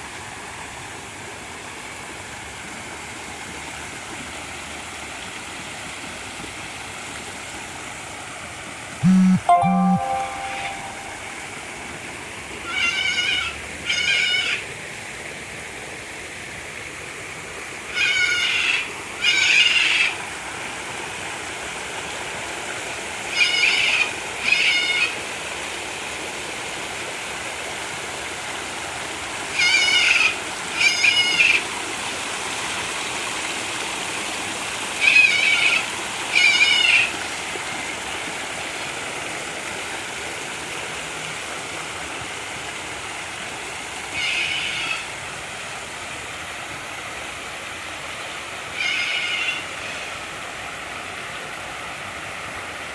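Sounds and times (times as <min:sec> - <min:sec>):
water running over rocks: 0:00.0 - 0:09.0, 0:11.6 - 0:52.9
animal call wavering notes: 0:09.0 - 0:11.2.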